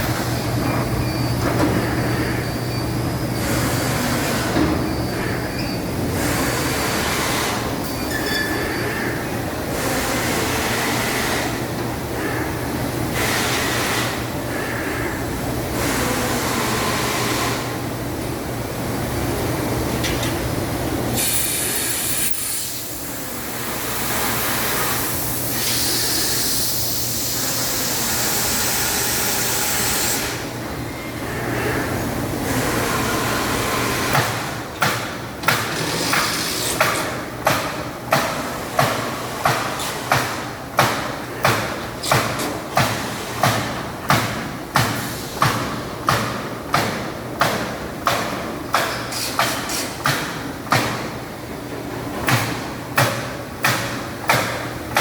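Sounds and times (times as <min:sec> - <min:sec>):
machine hiss: 0:21.1 - 0:30.5, 0:48.8 - 0:50.4.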